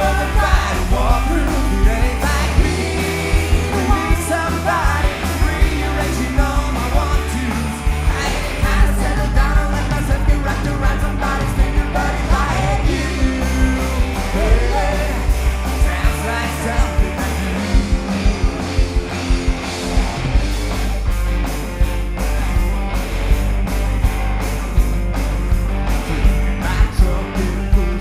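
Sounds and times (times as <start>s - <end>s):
person singing: 0.0s - 18.8s, 26.6s - 28.0s
drum beat: 0.0s - 28.0s
rock band playing: 0.0s - 28.0s.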